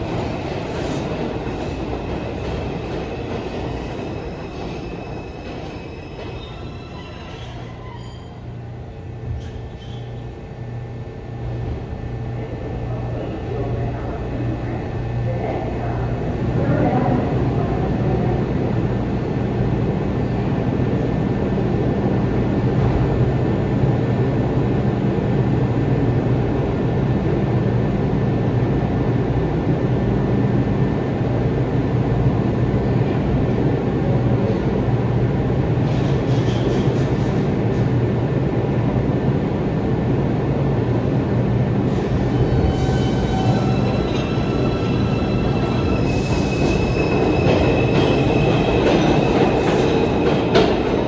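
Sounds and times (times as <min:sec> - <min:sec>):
subway train rumbling on track: 0:00.0 - 0:51.0.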